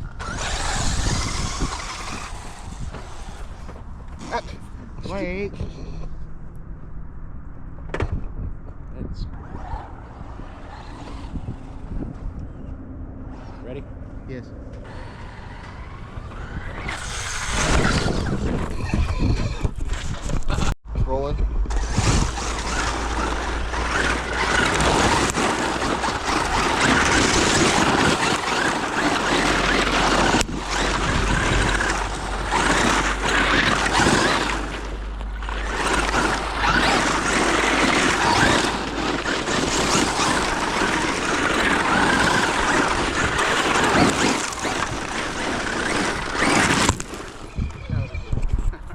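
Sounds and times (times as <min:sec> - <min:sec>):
radio-controlled truck running on dirt: 0:00.0 - 0:06.1, 0:09.0 - 0:13.8, 0:14.7 - 0:20.8, 0:21.6 - 0:48.9.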